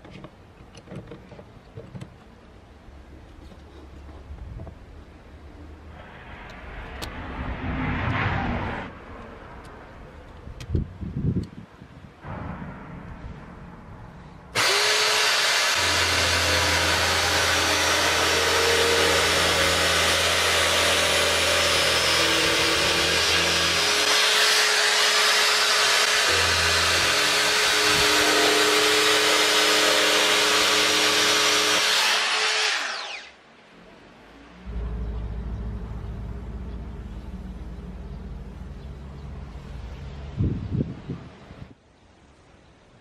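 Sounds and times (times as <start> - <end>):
electric drill whirring: 14.6 - 33.4.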